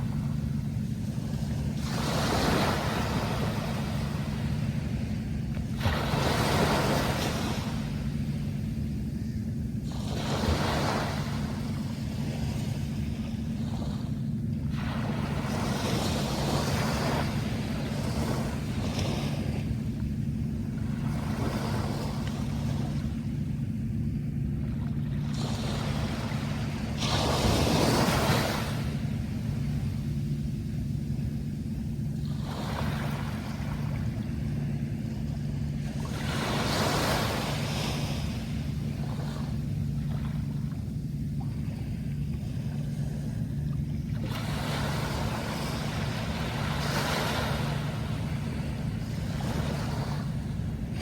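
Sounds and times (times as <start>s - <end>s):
low rumble: 0.0s - 51.0s
sea waves washing in: 0.0s - 51.0s
steady low hum: 0.0s - 51.0s.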